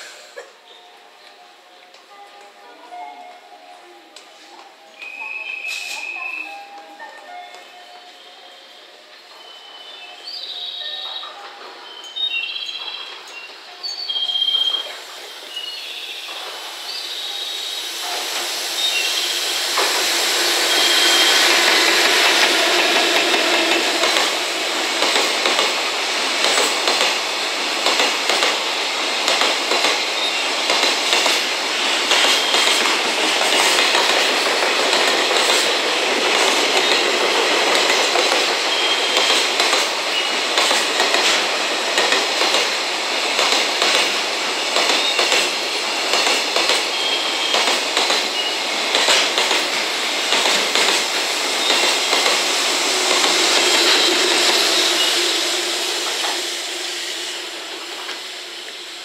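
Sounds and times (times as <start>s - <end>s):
freight train passing: 0.0s - 59.0s
high wheel squeals: 16.9s - 24.4s
wheels clickety-clack over rail joints: 21.5s - 54.7s.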